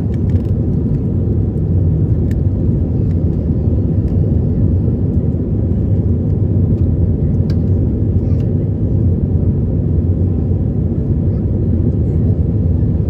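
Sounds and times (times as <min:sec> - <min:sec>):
jet engine cabin rumble: 0:00.0 - 0:13.0.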